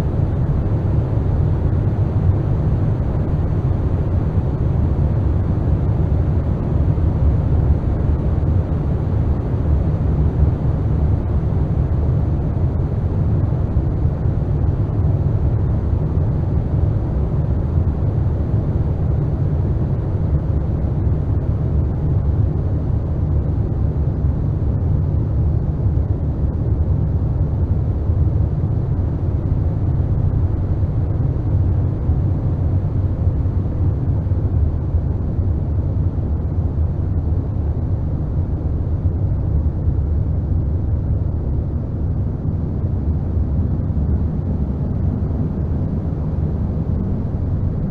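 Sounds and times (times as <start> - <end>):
deep rumbling drone: 28.9 - 47.9.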